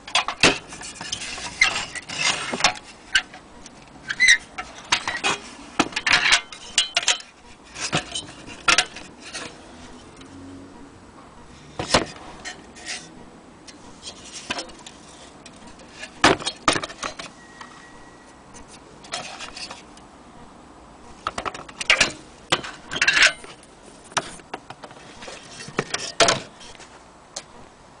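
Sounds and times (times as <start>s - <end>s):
metal lantern clinking and rattling: 4.1s - 9.6s, 21.4s - 23.6s.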